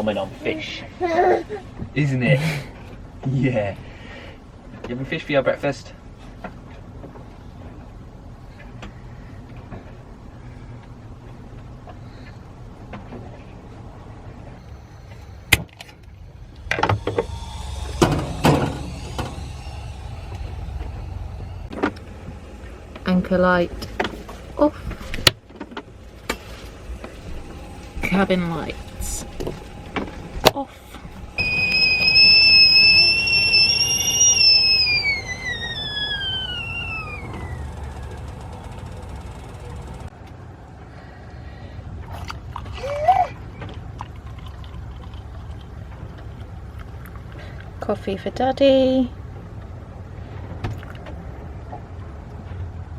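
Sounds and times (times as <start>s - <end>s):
low steady rumble: 0.0s - 52.9s
kettle whistling: 14.6s - 25.3s, 25.9s - 40.1s.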